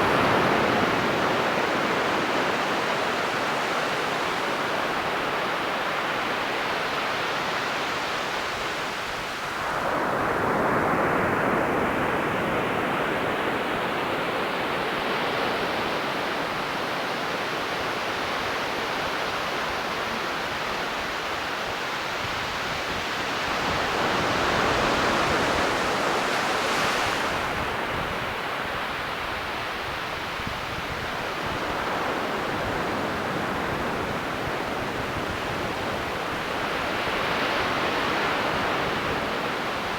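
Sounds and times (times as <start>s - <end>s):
ocean surf rushing: 8.2s - 30.0s.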